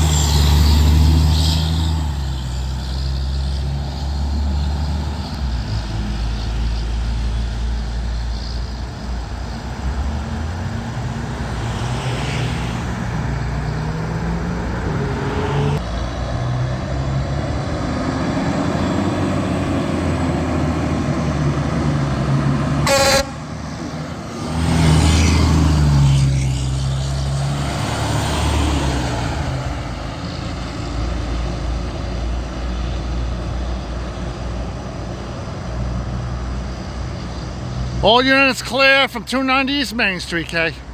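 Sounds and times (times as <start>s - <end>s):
diesel truck engines running: 0.0s - 40.9s
truck engine revving: 0.0s - 40.9s
truck horn toot: 22.8s - 24.0s.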